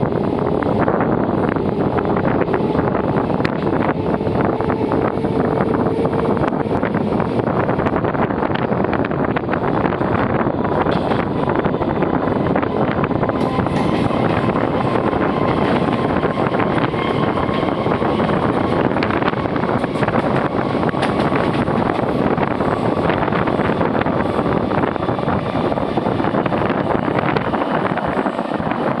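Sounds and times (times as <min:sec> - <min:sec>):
train wheels rumbling on rails: 0:00.0 - 0:29.0
wind buffeting microphone: 0:00.0 - 0:29.0.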